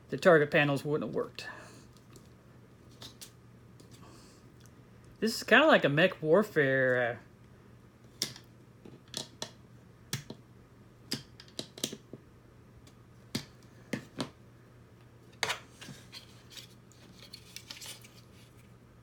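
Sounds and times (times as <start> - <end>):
faint steady hum: 0.0 - 19.0
plastic parts clicking and tapping: 8.2 - 10.4, 11.1 - 12.1.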